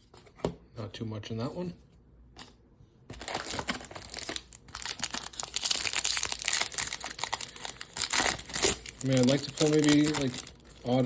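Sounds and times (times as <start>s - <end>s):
wrapper crinkling: 3.2s - 11.0s.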